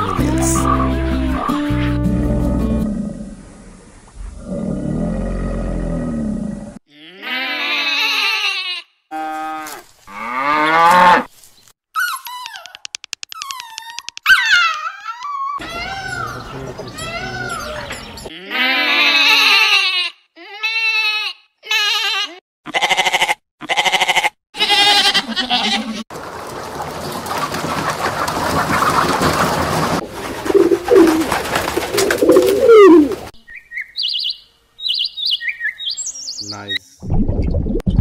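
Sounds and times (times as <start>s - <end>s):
animal cries: 0.0s - 1.9s, 6.9s - 9.8s, 13.4s - 26.0s.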